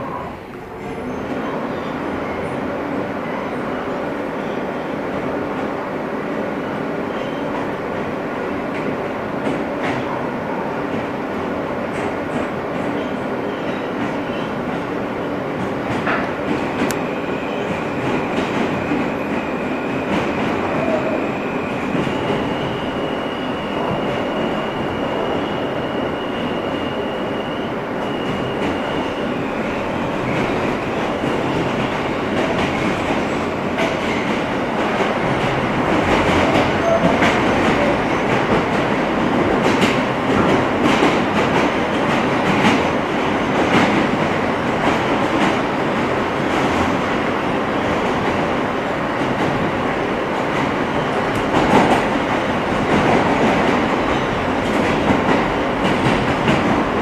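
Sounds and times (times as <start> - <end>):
train wheels rumbling on rail: 0.0 - 57.0
rail-joint clicks: 15.6 - 17.1.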